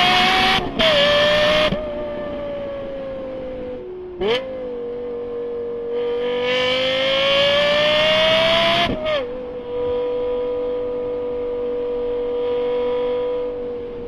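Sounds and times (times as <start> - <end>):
engine revving at high revs: 6.0 - 9.0.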